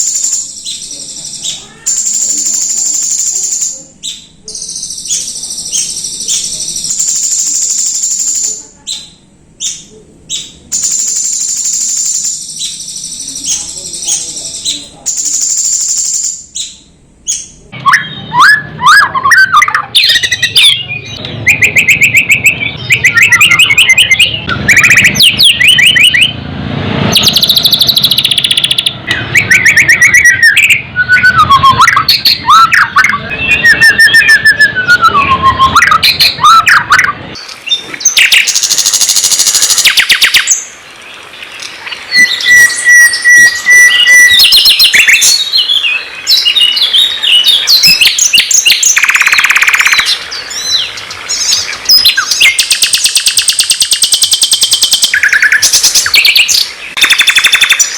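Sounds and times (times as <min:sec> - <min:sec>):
songbird singing: 0:00.0 - 0:57.9
bird held whistle: 0:27.1 - 0:37.1, 0:42.2 - 0:45.2.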